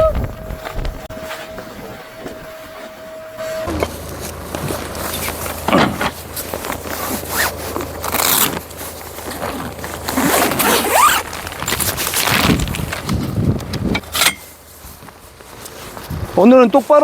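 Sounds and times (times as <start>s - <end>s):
zipper being pulled: 9.3s - 12.9s.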